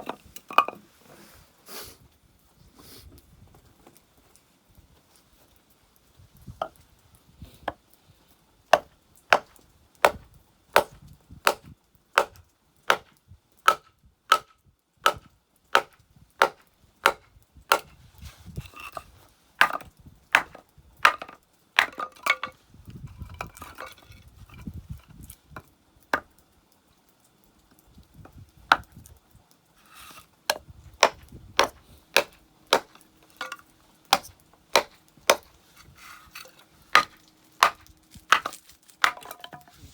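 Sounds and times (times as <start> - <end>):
firewood being chopped: 8.7 - 18.0, 19.6 - 26.3, 28.3 - 29.1, 29.8 - 39.9.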